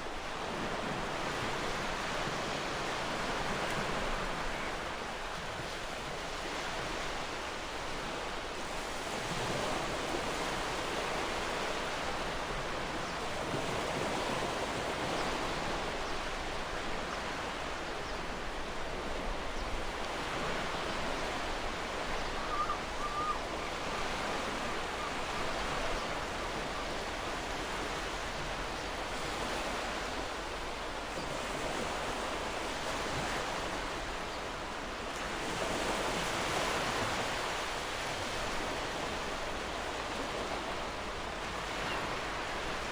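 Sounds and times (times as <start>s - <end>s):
faint bird call: 22.1s - 26.9s.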